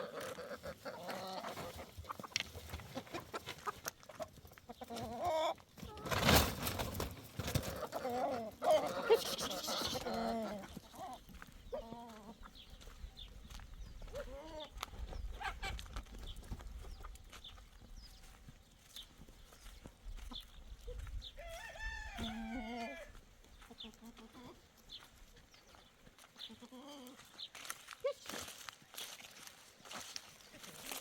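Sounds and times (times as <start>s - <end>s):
chickens clucking: 0.0s - 31.0s
rooster crowing: 21.4s - 23.2s.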